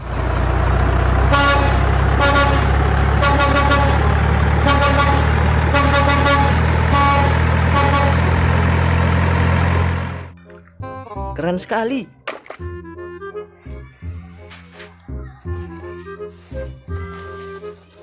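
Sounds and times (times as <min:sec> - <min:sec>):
truck engine drone: 0:00.0 - 0:11.3
truck horn honks: 0:01.2 - 0:08.7.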